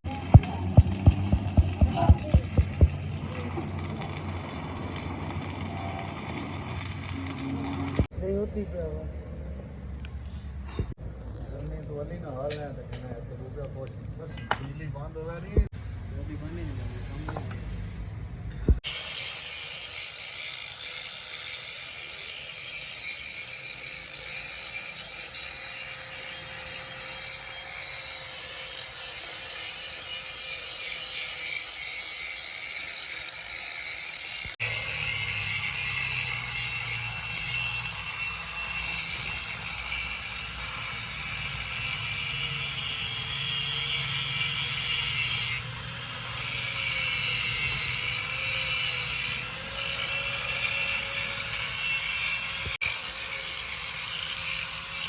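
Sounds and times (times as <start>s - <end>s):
metalworking tools scraping steel: 18.8s - 55.0s.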